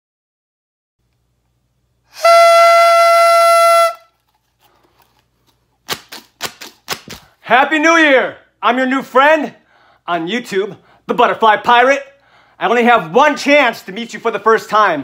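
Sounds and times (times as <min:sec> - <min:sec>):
buzzy horn-like note: 0:02.1 - 0:04.2.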